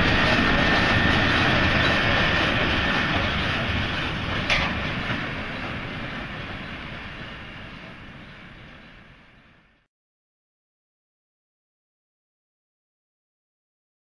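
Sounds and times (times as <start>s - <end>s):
steam train rumbling on tracks: 0.0s - 9.9s.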